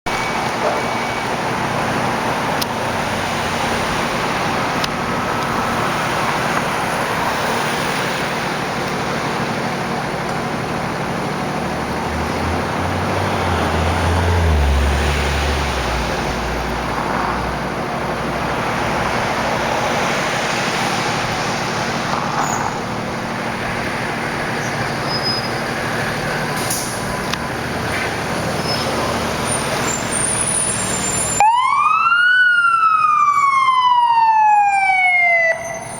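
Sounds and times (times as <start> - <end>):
heavy vehicle engine rumble: 0.1 - 31.4
roar of passing vehicles: 2.4 - 31.0.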